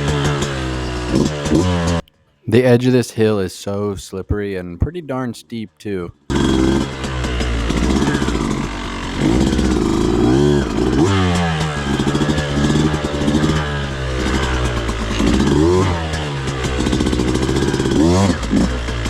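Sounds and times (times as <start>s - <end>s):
dirt bike engine revving: 0.0s - 2.0s, 6.2s - 19.0s.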